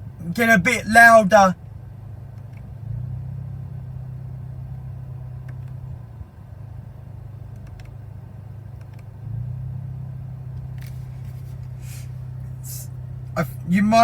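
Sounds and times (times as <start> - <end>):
car engine idling: 0.0 - 14.0
faint clicks: 7.5 - 8.0, 8.8 - 9.1.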